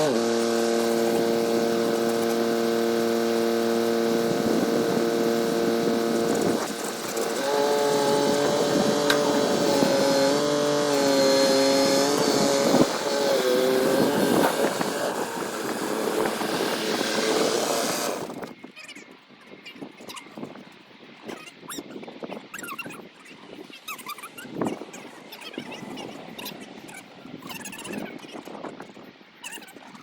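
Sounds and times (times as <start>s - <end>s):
tractor engine running: 0.0s - 18.5s.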